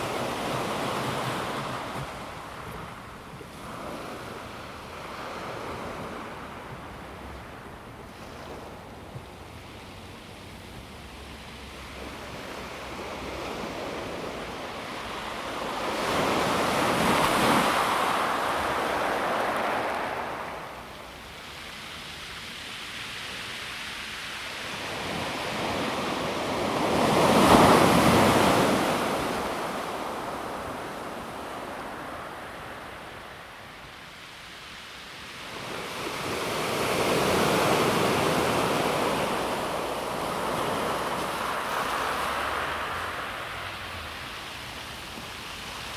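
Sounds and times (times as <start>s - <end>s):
waves washing over pebble beach: 35.5s - 45.9s.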